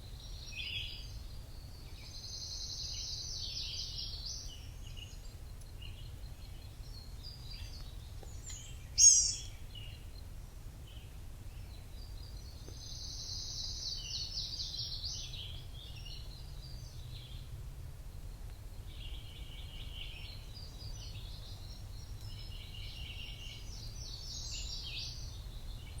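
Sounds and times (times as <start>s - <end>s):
close bird call: 1.8s - 10.2s
birds chirping and trilling: 5.8s - 10.0s.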